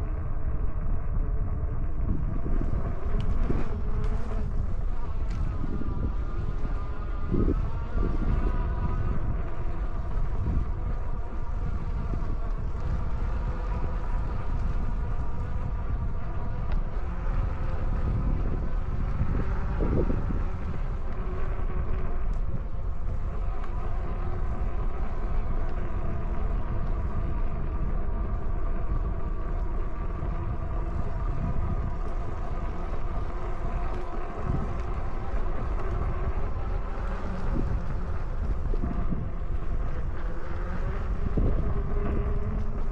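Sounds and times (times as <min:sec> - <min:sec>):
electric hub motor whine: 0:00.0 - 0:42.9
wind buffeting microphone: 0:00.0 - 0:42.9.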